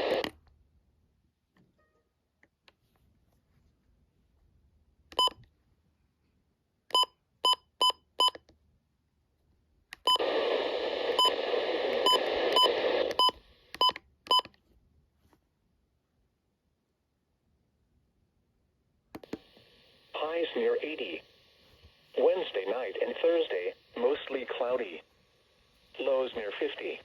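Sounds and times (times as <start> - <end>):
radio static: 0.0 - 0.2, 10.2 - 13.2, 19.3 - 25.1, 25.8 - 27.0.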